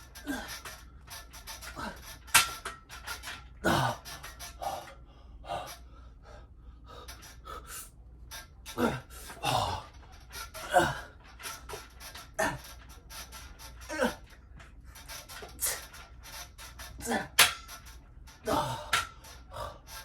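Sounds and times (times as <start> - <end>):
man gasping and grunting: 0.2 - 0.8, 3.6 - 6.4, 8.7 - 11.3, 13.8 - 14.4, 17.0 - 17.4, 18.4 - 20.0
quiet breathing: 4.6 - 8.0.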